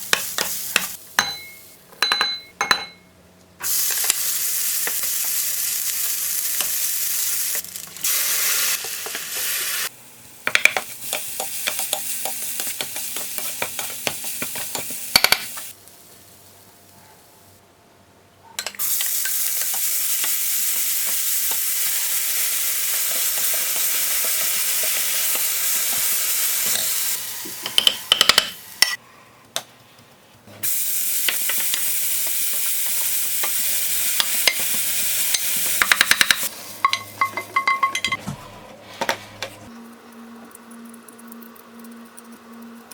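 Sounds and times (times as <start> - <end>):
food sizzling in a frying pan: 3.6 - 16.4, 18.8 - 27.7, 30.6 - 37.0.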